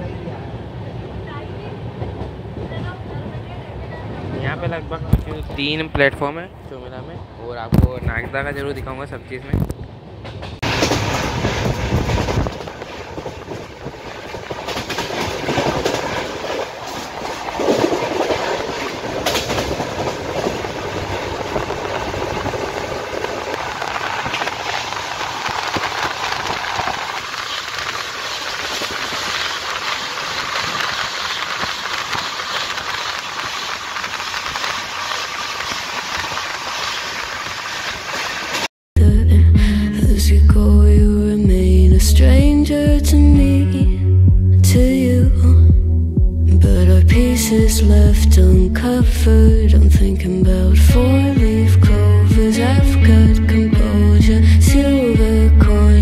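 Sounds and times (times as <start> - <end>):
train wheels on rails: 0.0 - 38.7.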